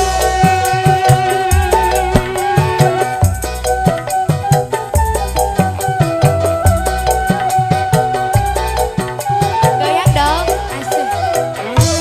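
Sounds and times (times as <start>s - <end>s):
band instrumental music: 0.0s - 12.0s
sliding melody line: 0.0s - 12.0s
low drum hits: 1.7s - 3.0s.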